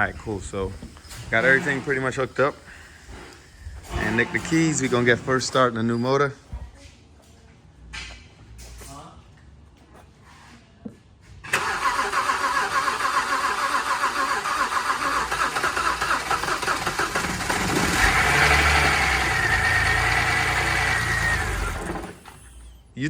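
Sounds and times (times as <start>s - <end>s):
engine cranking on starter: 0.0s - 5.5s, 11.4s - 23.0s
engine running unevenly: 15.2s - 22.8s.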